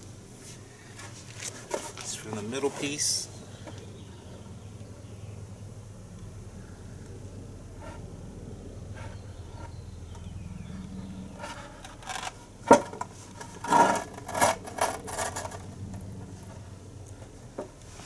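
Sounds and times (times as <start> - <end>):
low steady hum: 0.0 - 18.0
knocks and scrapes: 0.5 - 3.0, 11.4 - 16.6.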